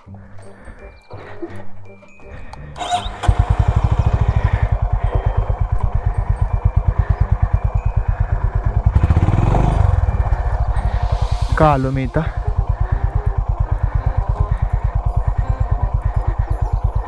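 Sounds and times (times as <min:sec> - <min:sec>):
motorcycle engine thumping: 0:02.8 - 0:11.1.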